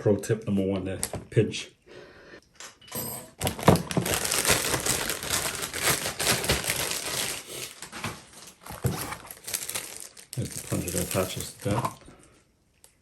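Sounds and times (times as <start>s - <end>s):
plastic wrapping crinkling: 3.4s - 12.0s.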